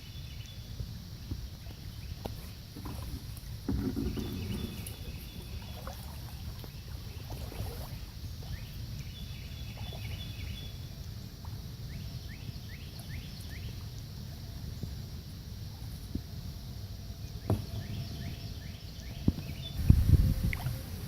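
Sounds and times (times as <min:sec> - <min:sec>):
paddle strokes and splashes: 0:01.3 - 0:12.0, 0:19.3 - 0:21.0
birds calling: 0:01.7 - 0:10.8.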